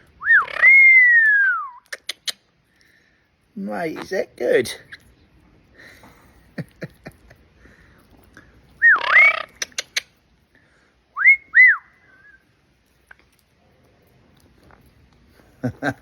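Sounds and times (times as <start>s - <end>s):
parrot whistling: 0.2s - 1.6s, 8.8s - 9.6s.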